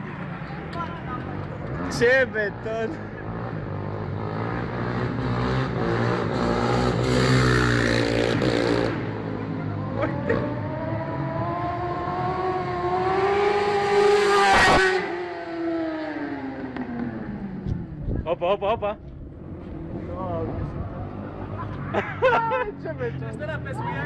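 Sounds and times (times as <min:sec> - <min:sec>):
vehicle engine accelerating: 0:00.0 - 0:18.1
vehicle passing close by: 0:01.3 - 0:09.3.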